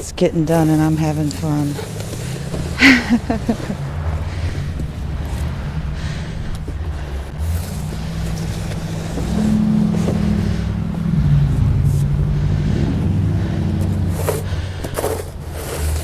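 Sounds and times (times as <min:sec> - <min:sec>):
car engine revving: 0:00.0 - 0:16.0
wind rumble on microphone: 0:02.7 - 0:15.5.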